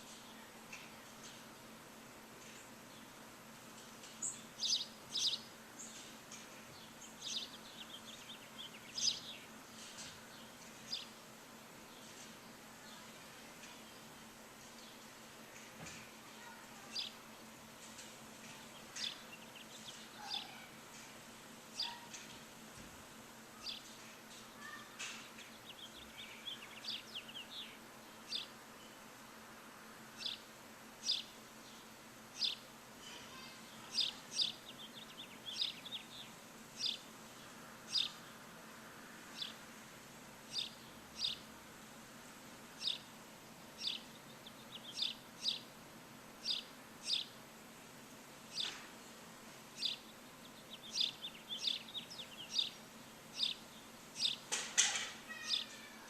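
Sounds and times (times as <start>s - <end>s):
faint steady hum: 0.0s - 56.0s
bird chirping: 4.0s - 9.6s, 17.9s - 20.7s, 21.7s - 22.3s, 23.6s - 29.0s, 30.2s - 32.7s, 33.3s - 38.3s, 40.5s - 41.5s, 42.8s - 43.1s, 43.8s - 45.7s, 46.4s - 47.4s, 49.7s - 56.0s.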